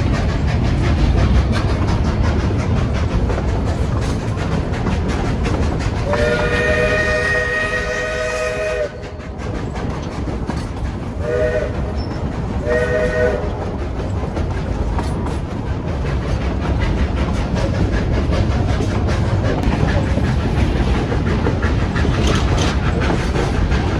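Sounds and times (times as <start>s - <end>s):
train wheels clattering on rails: 0.0s - 23.9s
locomotive whistle chord: 6.1s - 9.0s.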